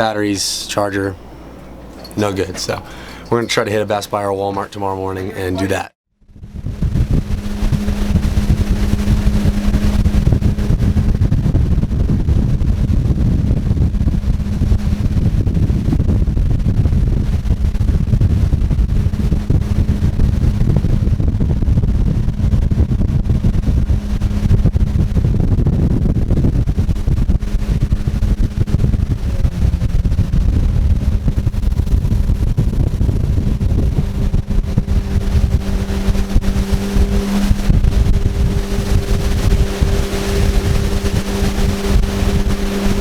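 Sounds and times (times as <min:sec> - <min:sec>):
vehicle engine running: 0:00.0 - 0:43.0
wind and motion rumble: 0:00.0 - 0:43.0.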